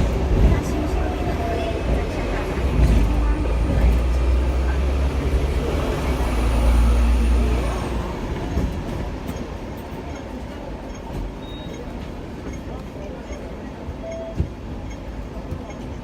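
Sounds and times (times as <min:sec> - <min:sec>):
tram running: 0:00.0 - 0:16.0.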